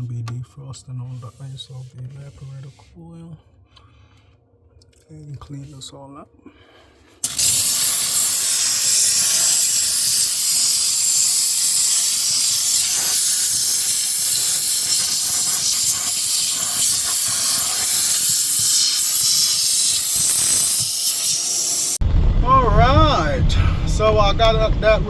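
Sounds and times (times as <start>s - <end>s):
loud hiss of steamer jet: 7.2s - 22.0s.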